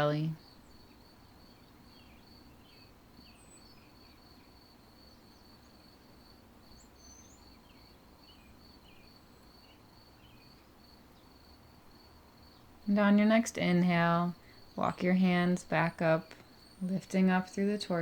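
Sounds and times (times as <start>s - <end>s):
faint bird chirps: 0.0s - 5.9s, 6.6s - 11.4s
faint cricket chirping: 0.2s - 18.0s.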